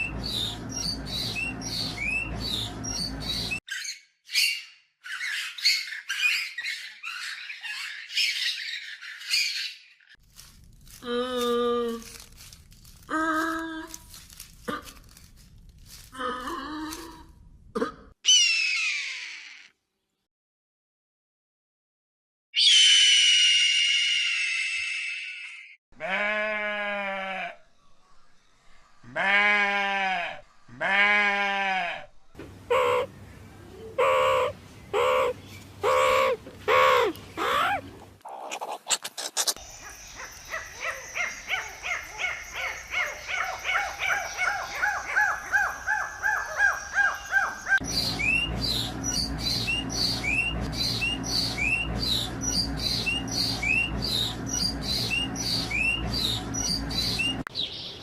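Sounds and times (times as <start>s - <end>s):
bird calls: 32.5s - 58.0s
rapid chirping calls: 33.9s - 57.5s.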